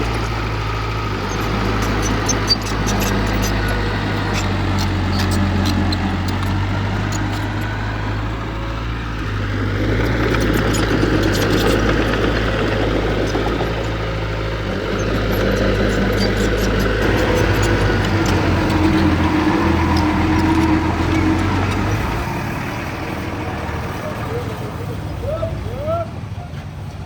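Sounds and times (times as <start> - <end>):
heavy machine diesel engine: 0.0 - 27.0
sharp metal clicks and clanks: 1.2 - 7.8.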